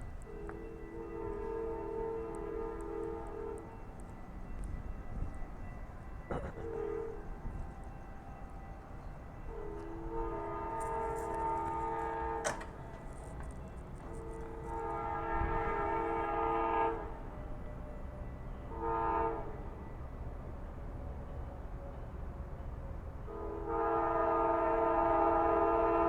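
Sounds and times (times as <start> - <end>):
train rumble: 0.0 - 26.0
locomotive air horn blasts: 0.2 - 3.8, 6.4 - 7.3, 9.5 - 13.4, 14.0 - 17.2, 18.7 - 19.6, 23.3 - 26.0.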